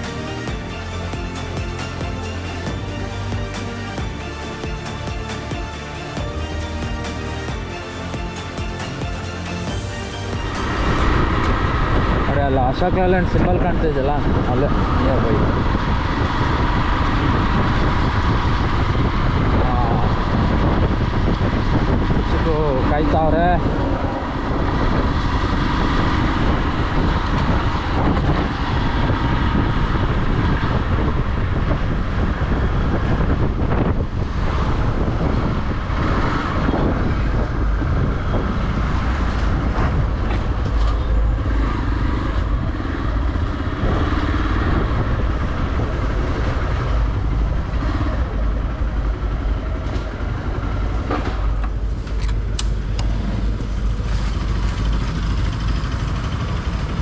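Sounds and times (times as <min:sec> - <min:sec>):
pickup truck driving: 0:13.6 - 0:57.0.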